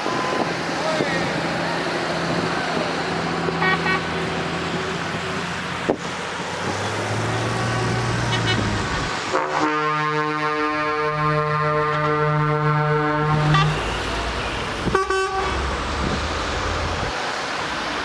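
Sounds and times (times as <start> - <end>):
trucks driving past: 0.0 - 18.0
multi-tone truck air horn: 3.5 - 4.2, 8.2 - 15.6
brief horn toots: 9.4 - 15.6.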